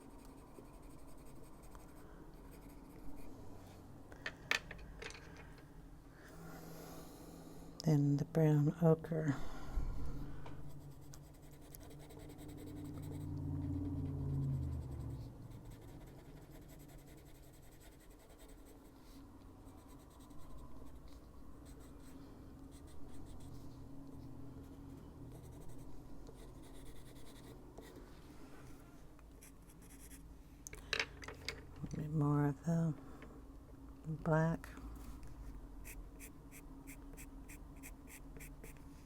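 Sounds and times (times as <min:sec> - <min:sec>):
pencil scratching on paper: 0:00.0 - 0:03.3, 0:10.7 - 0:24.3, 0:25.3 - 0:28.0, 0:29.4 - 0:30.2, 0:35.8 - 0:38.8.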